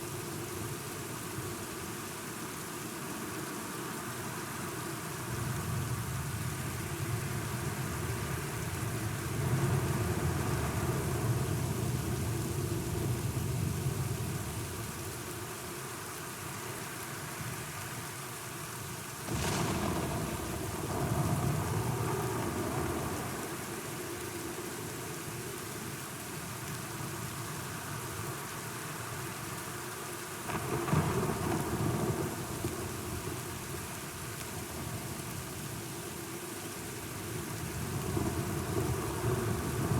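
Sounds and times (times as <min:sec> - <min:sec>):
steady rain: 0:00.0 - 0:39.9
sharp thunderclap: 0:19.3 - 0:22.2
thunder rolling: 0:19.3 - 0:23.2.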